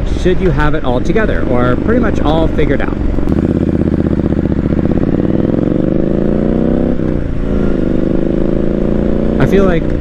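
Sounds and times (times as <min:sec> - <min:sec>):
motorcycle engine accelerating: 0:00.8 - 0:10.0.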